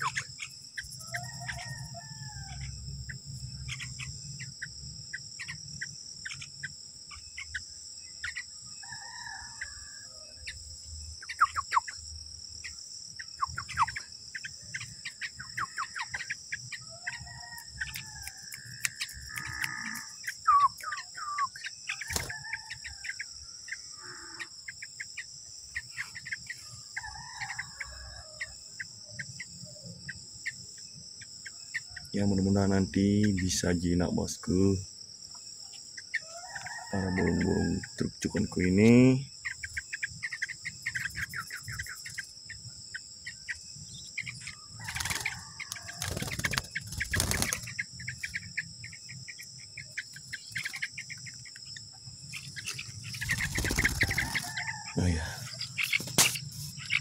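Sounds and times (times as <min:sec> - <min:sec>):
high-pitched insect drone: 0:00.0 - 0:57.0
sharp bird chirps: 0:00.0 - 0:57.0
chickens clucking: 0:36.2 - 0:39.0, 0:44.2 - 0:48.6, 0:52.3 - 0:57.0.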